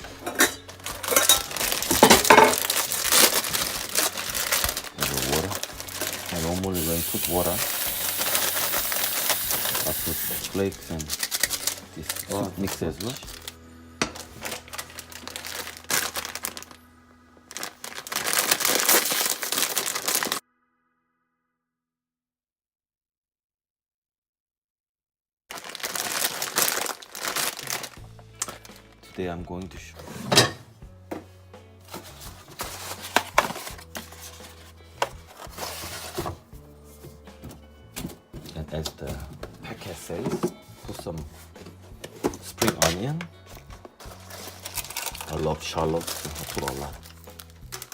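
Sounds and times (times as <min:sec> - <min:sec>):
background music: 0:00.0 - 0:20.4, 0:25.7 - 0:47.9
kitchen items knocking on counter: 0:00.2 - 0:02.6
rustling: 0:00.7 - 0:06.7, 0:43.5 - 0:47.9
plastic sachets crinkling and tearing: 0:00.7 - 0:16.8, 0:17.5 - 0:20.4, 0:25.5 - 0:29.0, 0:31.9 - 0:36.4, 0:42.1 - 0:47.9.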